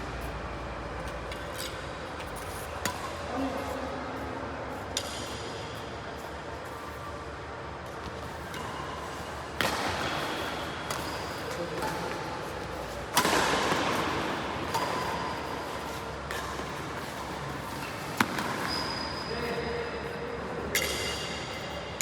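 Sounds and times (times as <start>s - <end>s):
rackets striking shuttlecock: 2.8s - 3.3s, 9.6s - 18.7s, 20.7s - 21.5s.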